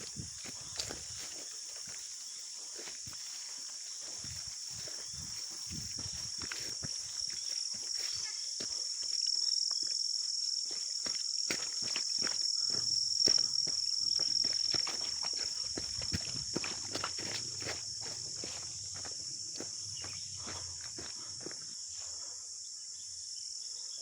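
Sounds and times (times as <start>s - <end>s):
footsteps on trail: 0.0s - 22.0s
insects droning: 0.0s - 24.0s.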